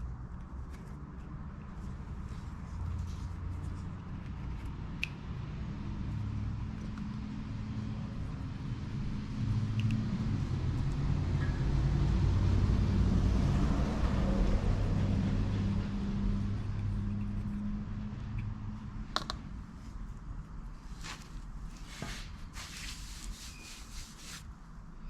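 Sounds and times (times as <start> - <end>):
vehicle engine passing by: 5.6 - 19.0.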